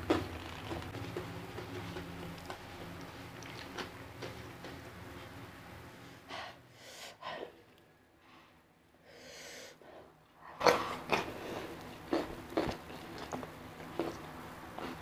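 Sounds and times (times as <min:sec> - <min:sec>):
wet chewing smacks: 0:02.3 - 0:04.4.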